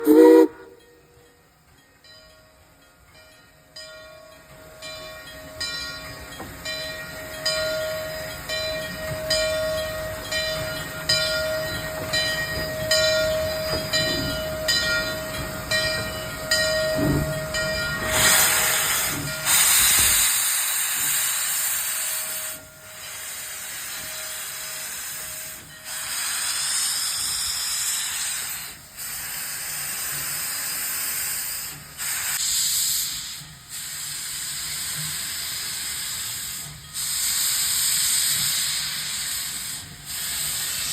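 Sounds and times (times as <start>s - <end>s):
steam hissing: 0.0s - 0.8s, 6.2s - 40.9s
steam engine chuffing: 8.9s - 40.9s.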